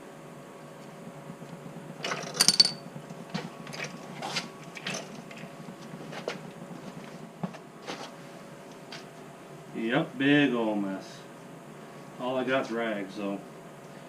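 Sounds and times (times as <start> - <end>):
metallic clanks of tools: 2.1 - 2.8.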